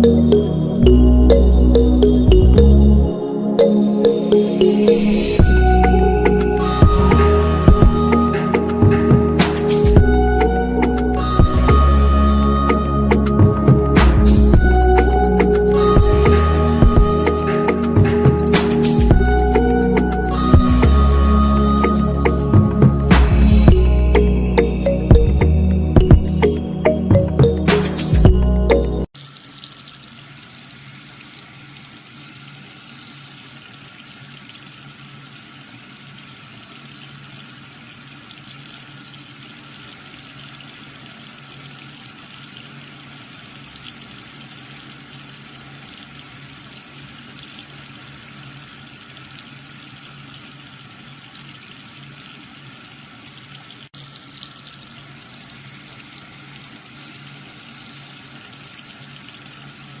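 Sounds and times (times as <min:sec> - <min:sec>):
water running and splashing: 0:29.1 - 1:00.0.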